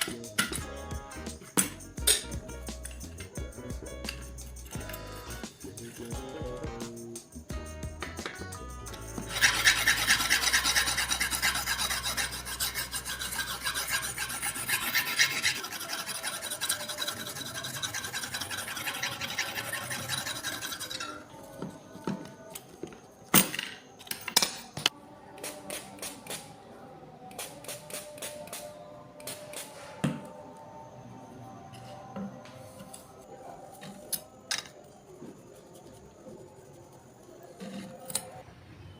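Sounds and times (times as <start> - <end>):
knife scraping on sharpener: 9.3 - 21.3.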